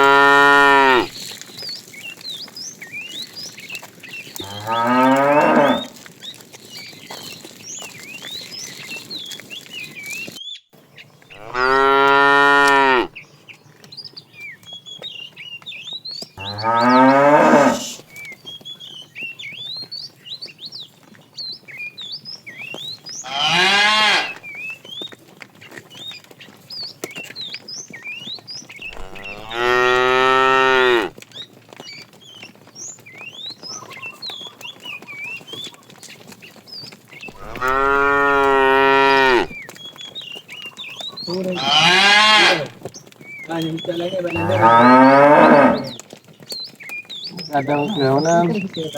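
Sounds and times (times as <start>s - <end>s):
cattle mooing: 0.0s - 1.1s, 4.4s - 6.0s, 11.4s - 13.1s, 16.4s - 18.0s, 23.3s - 24.4s, 28.9s - 31.1s, 37.4s - 39.6s, 41.5s - 42.8s, 44.3s - 46.0s.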